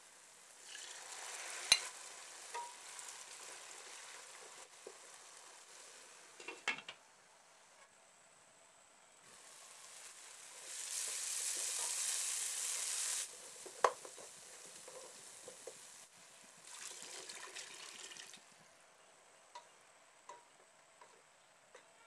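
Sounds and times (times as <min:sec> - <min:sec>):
masala sizzling in hot oil: 0:00.0 - 0:06.8, 0:09.2 - 0:18.6
water sizzling in pan: 0:00.0 - 0:06.8, 0:09.2 - 0:18.5.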